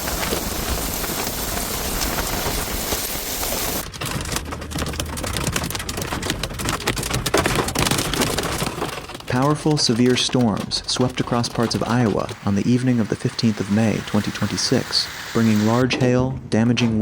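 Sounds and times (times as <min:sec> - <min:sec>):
heavy rain downpour: 0:00.0 - 0:03.9, 0:10.9 - 0:15.8
hailstones clattering on hard surface: 0:00.0 - 0:15.8.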